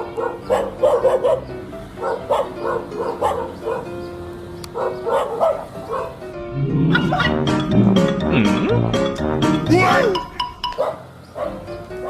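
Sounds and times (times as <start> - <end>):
dog barking: 0.0 - 4.0, 4.7 - 6.2, 10.7 - 11.7.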